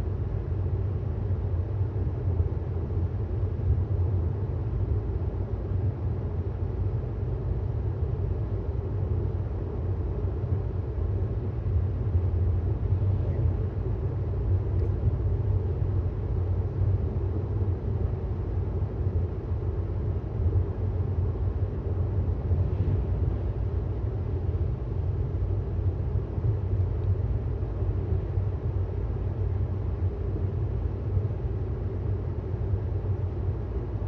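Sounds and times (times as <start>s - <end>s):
road and tyre rumble: 11.0s - 34.0s.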